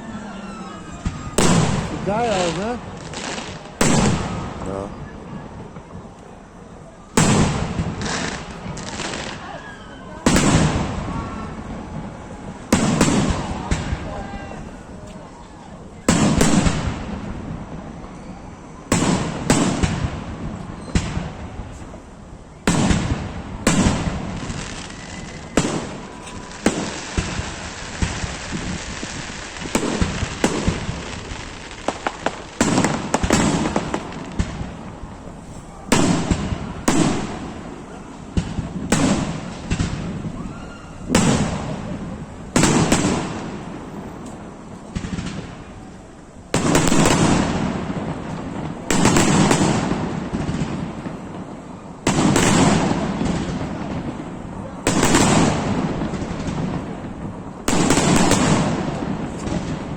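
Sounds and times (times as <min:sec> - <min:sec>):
fireworks crackling: 0:00.0 - 0:59.9
firework shells bursting: 0:22.7 - 0:59.9.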